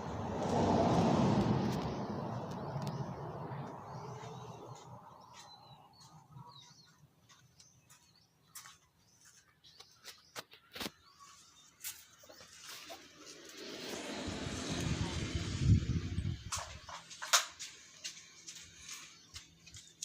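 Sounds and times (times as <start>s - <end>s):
vehicle passing: 0.0s - 6.4s, 12.6s - 16.9s.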